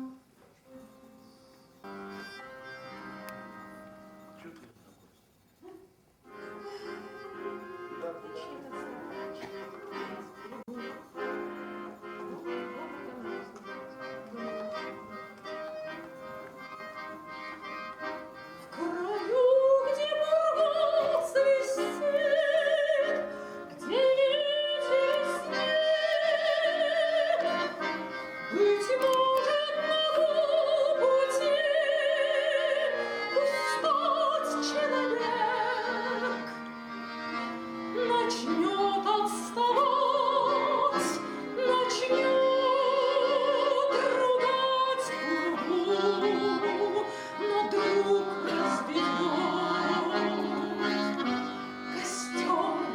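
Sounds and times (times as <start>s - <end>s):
accordion accompaniment: 0.0s - 52.9s
woman singing classical style: 18.7s - 27.8s, 28.5s - 36.6s, 37.9s - 52.9s.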